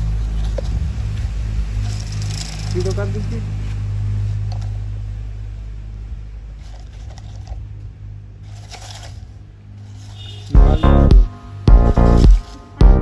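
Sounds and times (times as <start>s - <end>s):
loud music: 10.6s - 13.0s.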